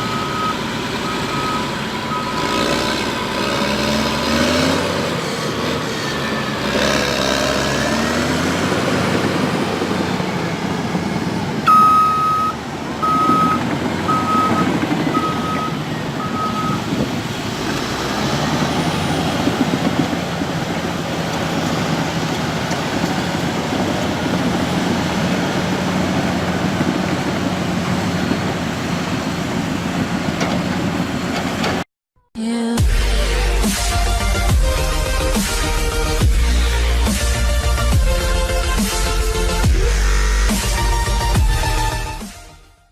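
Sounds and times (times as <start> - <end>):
heavy diesel engines running: 0.0 - 31.8, 32.8 - 42.6
warning alarm beeping: 11.7 - 17.0.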